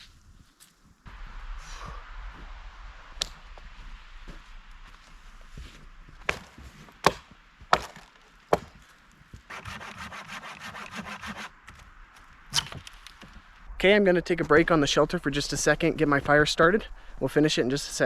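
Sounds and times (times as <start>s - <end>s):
sawing through wood: 9.5s - 11.6s
sticks snapping: 12.5s - 13.3s.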